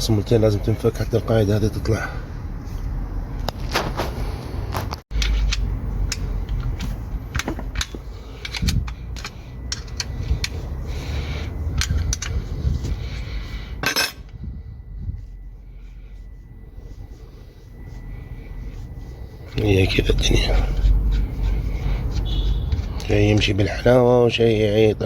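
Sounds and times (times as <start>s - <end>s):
metal tools clinking on engine: 5.1s - 10.6s, 11.6s - 12.6s, 13.7s - 14.4s
low rumble: 5.6s - 23.0s.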